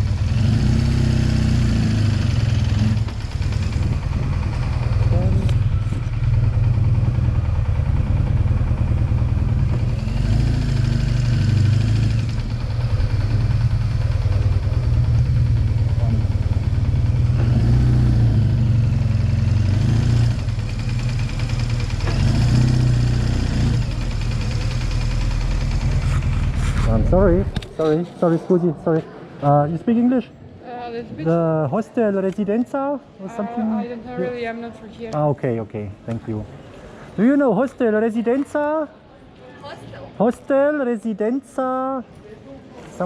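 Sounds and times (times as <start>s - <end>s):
motorcycle engine idling: 0.0s - 27.6s.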